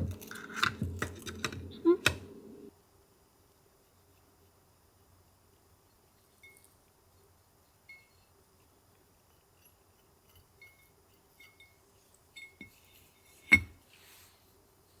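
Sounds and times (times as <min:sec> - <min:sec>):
soft rustle: 0:05.8 - 0:15.0
light ringing clinks: 0:10.3 - 0:13.7.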